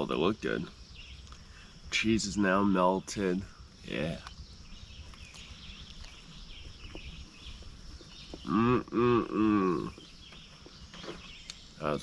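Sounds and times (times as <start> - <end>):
faint birdsong: 0.0 - 12.0.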